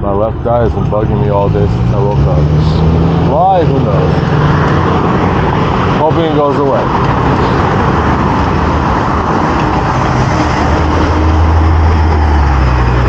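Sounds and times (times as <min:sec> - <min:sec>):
passing motor traffic hum: 0:00.0 - 0:13.0
wind and road noise: 0:00.0 - 0:13.0.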